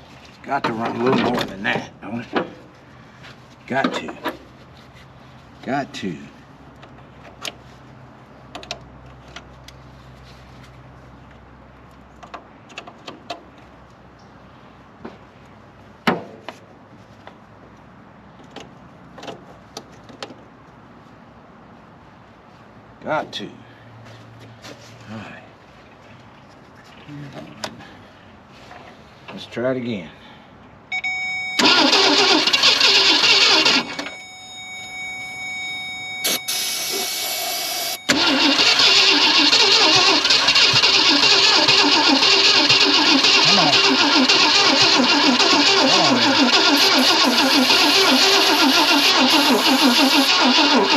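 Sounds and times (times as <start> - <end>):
car starter cranking: 31.5 - 34.2, 36.2 - 50.9.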